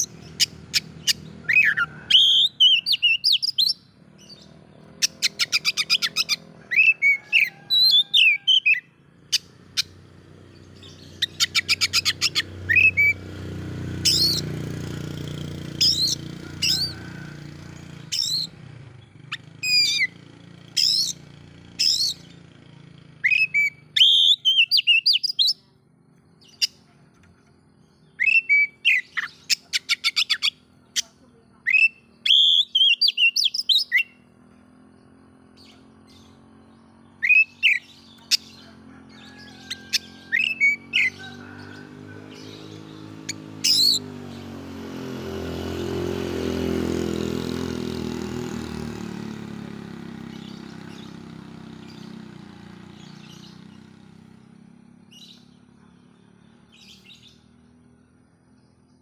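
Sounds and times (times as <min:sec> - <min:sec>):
bird chattering trills: 0:00.0 - 0:22.4, 0:23.2 - 0:25.8, 0:26.4 - 0:34.8, 0:35.5 - 0:44.5
bird singing whistled phrases: 0:00.4 - 0:03.8, 0:11.0 - 0:13.3, 0:23.2 - 0:25.6, 0:28.0 - 0:30.6, 0:31.6 - 0:34.2, 0:37.2 - 0:38.4.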